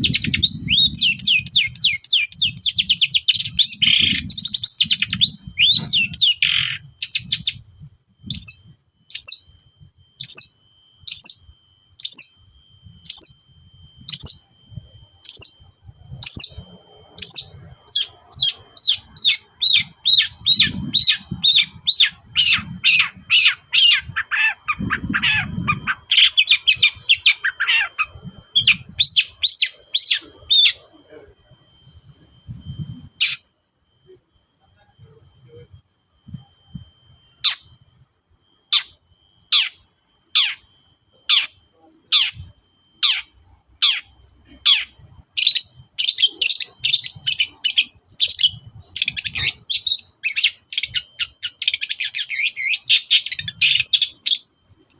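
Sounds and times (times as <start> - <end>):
bird singing sharp high notes: 0.0 - 30.9.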